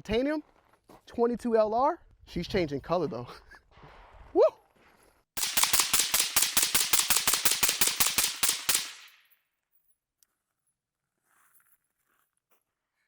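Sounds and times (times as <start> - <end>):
rapid suppressed gunshots: 5.4 - 9.2.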